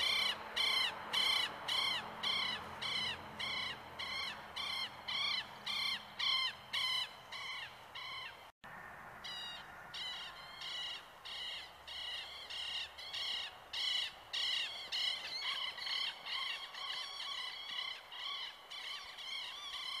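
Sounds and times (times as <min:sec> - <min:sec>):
bird calling harsh notes: 0:00.0 - 0:08.4.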